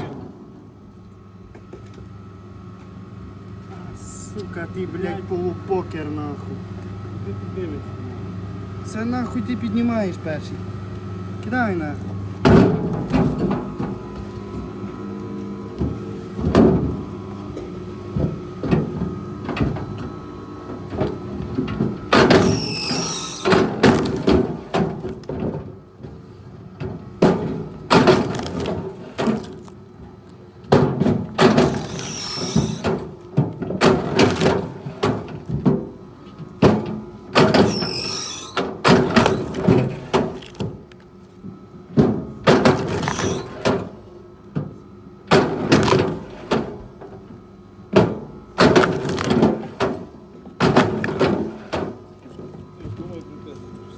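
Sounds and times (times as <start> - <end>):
heavy machine engine running: 3.6 - 44.2
wooden knocks and thuds: 48.0 - 53.0.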